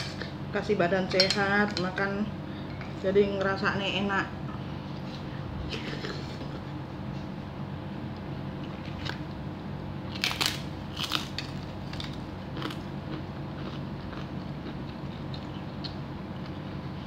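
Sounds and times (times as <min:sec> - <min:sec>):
person chewing food: 0:10.1 - 0:17.0.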